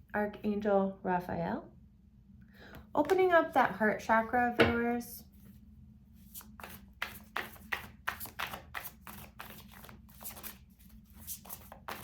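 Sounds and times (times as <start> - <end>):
cards being shuffled: 6.3 - 12.0.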